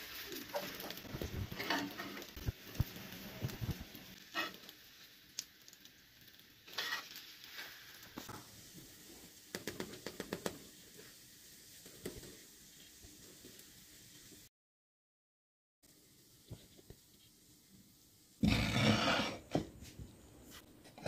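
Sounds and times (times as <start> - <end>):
buns sizzling in a frying pan: 0.0 - 14.5, 15.8 - 21.0
metal spatula scraping pan: 0.5 - 2.3, 4.3 - 4.6, 6.7 - 7.8, 18.4 - 19.6.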